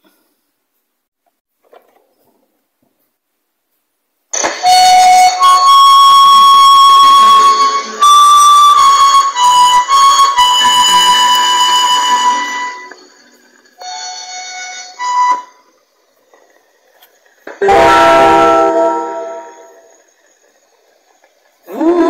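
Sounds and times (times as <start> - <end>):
speaker playing melody: 4.4 - 15.8.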